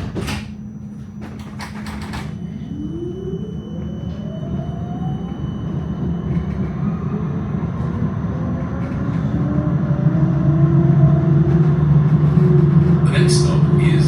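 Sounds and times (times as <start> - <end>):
tram motor whine: 0.0 - 14.0
wheels rumbling on rails: 3.6 - 14.0.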